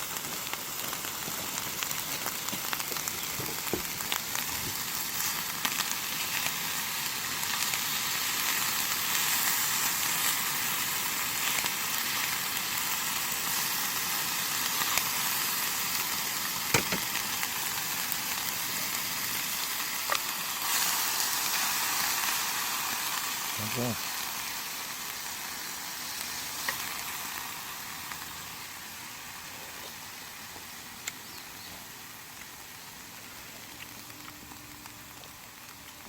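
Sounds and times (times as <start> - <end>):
food sizzling in a pan: 0.0 - 36.0
sharp pops: 16.7 - 17.3.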